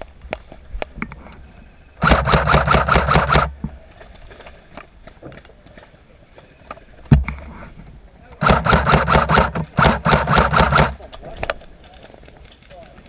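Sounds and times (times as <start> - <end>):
airsoft rifle full-auto burst: 2.0 - 3.6, 8.4 - 11.0
sharp crack: 2.0 - 3.6, 8.4 - 11.1
scattered airsoft shots: 2.0 - 3.7, 8.4 - 11.0.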